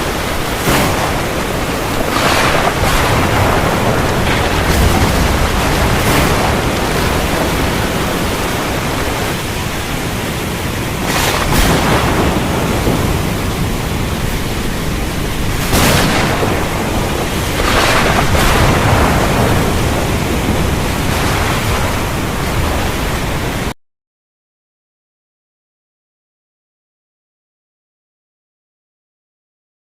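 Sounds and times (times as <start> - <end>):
thunder: 0.0 - 10.0, 10.9 - 23.7
sea surf: 0.0 - 23.8
steady rain: 0.0 - 23.8.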